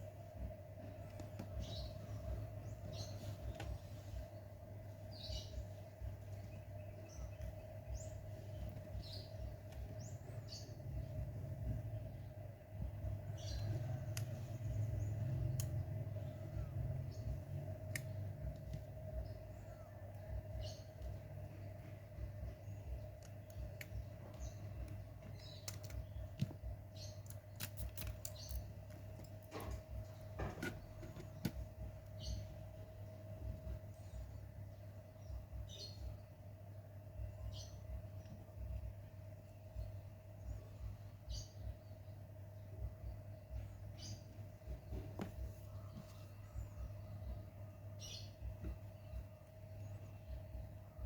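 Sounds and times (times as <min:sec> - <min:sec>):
steady low hum: 0:00.0 - 0:51.0
small bird chirping: 0:00.8 - 0:12.4, 0:13.0 - 0:51.0
small clicks and taps: 0:24.8 - 0:26.6.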